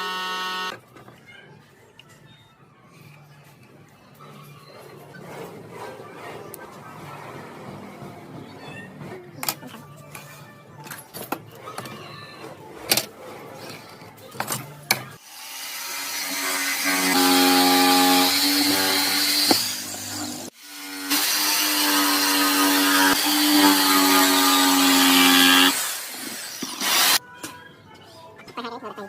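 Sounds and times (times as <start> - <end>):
power tool motor whining: 0.0 - 0.7, 15.6 - 27.2.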